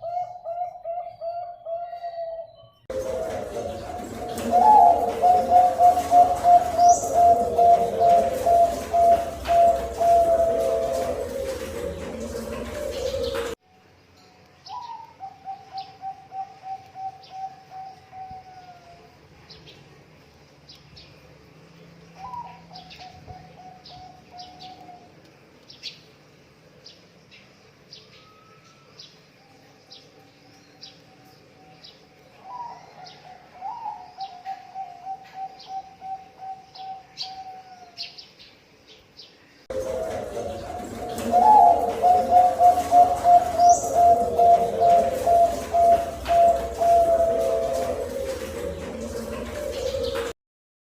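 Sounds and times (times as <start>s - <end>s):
doves cooing: 0.0s - 13.6s, 14.7s - 19.1s, 32.4s - 38.0s, 39.7s - 50.4s
small birds chirping: 0.0s - 50.3s.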